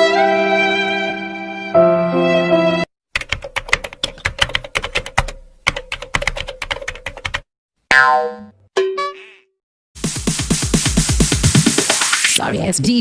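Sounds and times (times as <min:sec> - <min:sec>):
fast typing on keyboard: 0:03.2 - 0:07.5.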